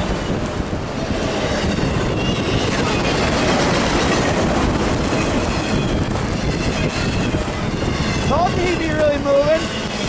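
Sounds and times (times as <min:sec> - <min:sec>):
train rushing noise: 0:00.0 - 0:10.0
train wheels clattering on rails: 0:00.0 - 0:10.0
faint wheel squeal: 0:01.4 - 0:04.2.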